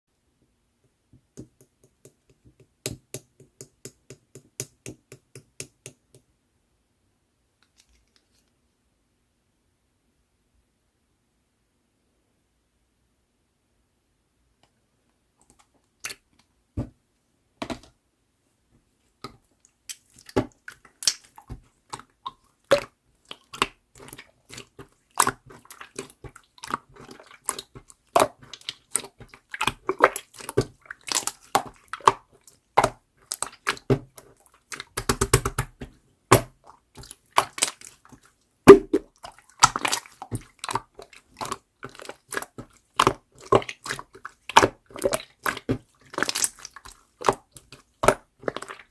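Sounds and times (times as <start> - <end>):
slime clicking and popping: 34.7 - 36.5.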